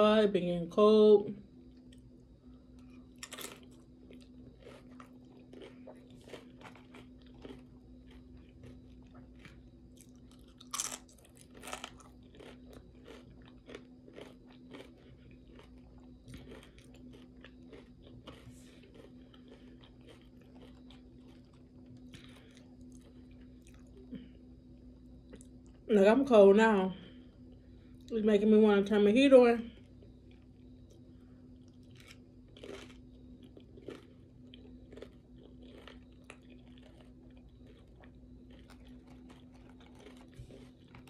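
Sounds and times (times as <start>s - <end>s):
chips crunching while chewed: 2.8s - 24.1s, 31.6s - 41.0s.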